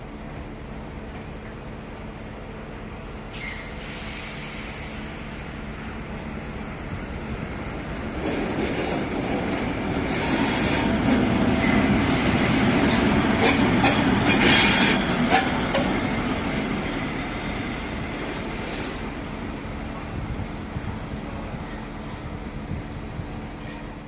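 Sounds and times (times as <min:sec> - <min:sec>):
train wheels knocking over rail joints: 0:08.2 - 0:16.6
high wheel squeal: 0:10.1 - 0:11.0.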